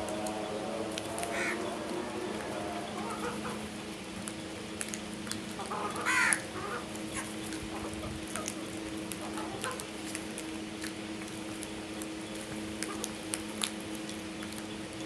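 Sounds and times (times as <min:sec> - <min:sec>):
crows calling: 0:00.0 - 0:03.9, 0:05.6 - 0:08.5
low hum: 0:00.0 - 0:05.8.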